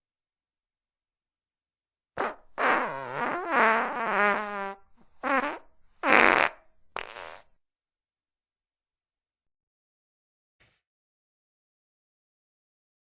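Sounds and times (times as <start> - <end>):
fart sound effects: 2.2 - 7.5.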